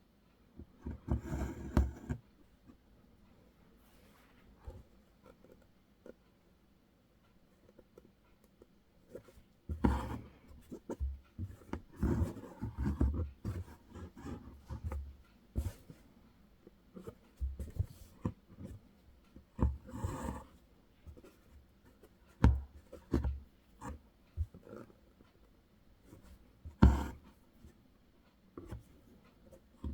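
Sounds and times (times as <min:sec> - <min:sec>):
needle and thread through fabric: 0:07.6 - 0:25.4.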